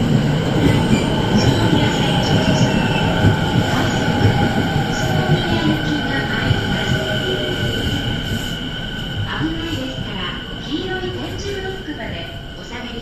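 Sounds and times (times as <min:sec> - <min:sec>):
electric train rumbling: 0:00.0 - 0:13.0
train wheels whining: 0:00.0 - 0:13.0.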